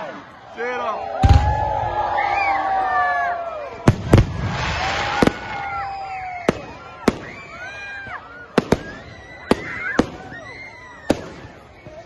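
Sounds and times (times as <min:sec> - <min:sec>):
crowd voices calling out: 0:00.0 - 0:12.0
fireworks bangs: 0:01.2 - 0:02.3, 0:03.8 - 0:12.0.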